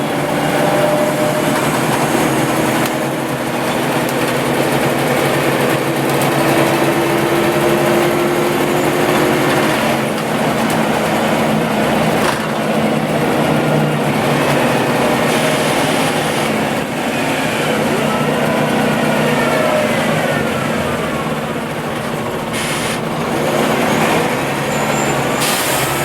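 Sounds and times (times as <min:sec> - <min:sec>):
bus engine running: 0:00.0 - 0:26.0.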